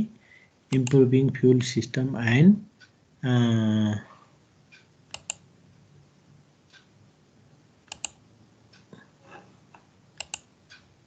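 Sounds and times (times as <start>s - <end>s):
computer keys clicking: 0.7s - 1.0s, 5.1s - 5.4s, 7.8s - 8.2s, 9.7s - 10.9s.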